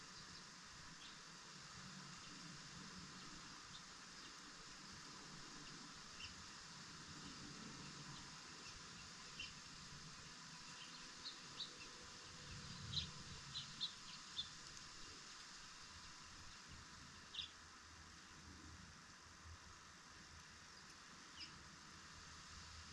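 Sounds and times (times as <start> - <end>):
faint steady hiss: 0.0 - 22.9
birds chirping: 10.4 - 14.6.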